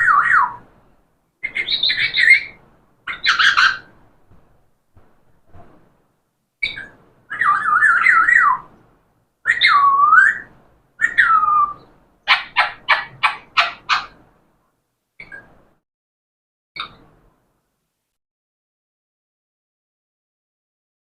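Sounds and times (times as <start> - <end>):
parrot whistling and calling: 0.0 - 0.6, 1.4 - 3.9, 6.6 - 8.7, 9.4 - 14.2.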